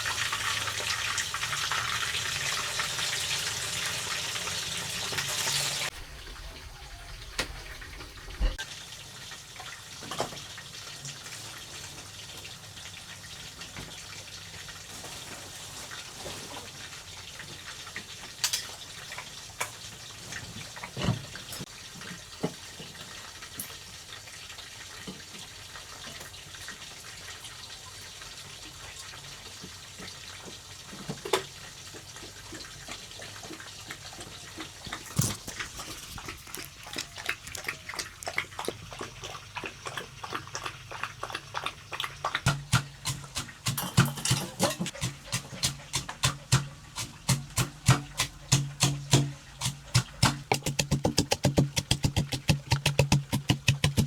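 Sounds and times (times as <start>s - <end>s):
water running and splashing: 0.0s - 54.0s
knocks and clicks: 42.5s - 54.0s.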